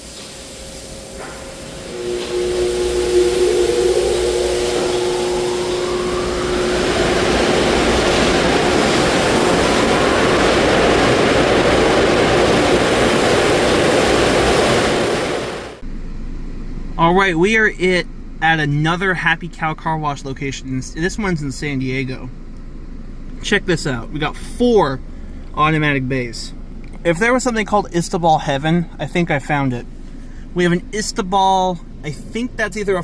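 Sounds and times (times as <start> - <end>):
car wash dryer blowers: 0.0 - 15.8.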